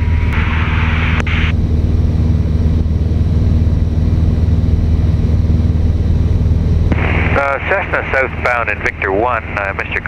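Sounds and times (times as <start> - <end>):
light aircraft engine droning: 0.0 - 10.0
radio hiss: 6.9 - 10.0.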